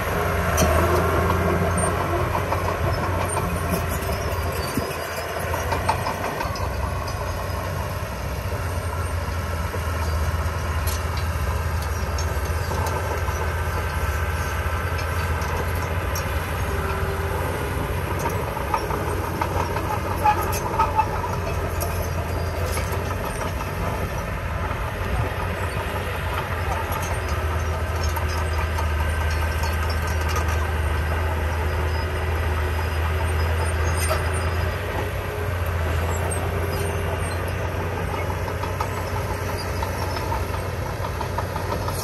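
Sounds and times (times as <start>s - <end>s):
diesel machinery engine hum: 0.0s - 42.0s
light metallic clicks and clanks: 25.6s - 31.2s.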